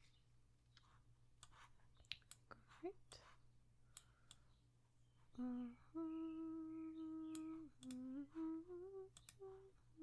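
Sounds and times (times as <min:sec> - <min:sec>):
woman humming: 0:05.4 - 0:10.0
soft clicks: 0:07.2 - 0:08.1, 0:09.1 - 0:09.4.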